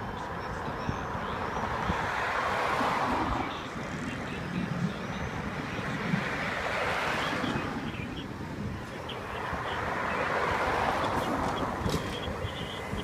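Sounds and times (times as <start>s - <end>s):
road traffic rush: 0.0s - 13.0s.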